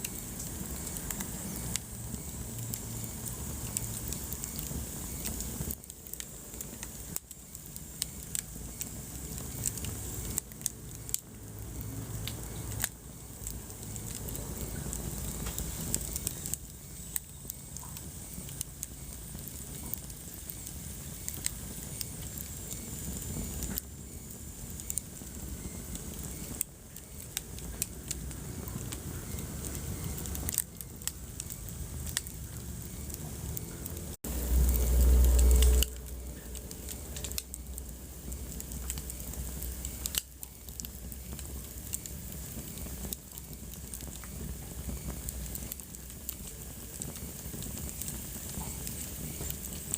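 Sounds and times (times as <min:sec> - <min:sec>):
wood fire crackling: 0:00.0 - 0:49.9
loud low rumble: 0:34.2 - 0:38.5.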